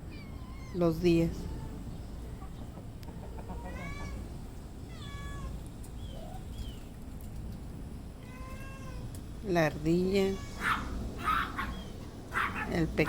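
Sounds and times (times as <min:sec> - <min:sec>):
cat meowing: 0:03.6 - 0:04.2, 0:04.9 - 0:05.5, 0:08.2 - 0:09.1, 0:10.2 - 0:11.7.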